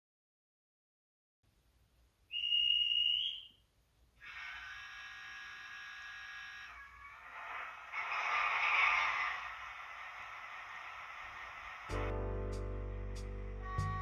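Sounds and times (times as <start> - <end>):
model train whistle: 2.3 - 3.5, 4.2 - 12.1, 13.6 - 14.0
faint low rumble: 10.8 - 14.0.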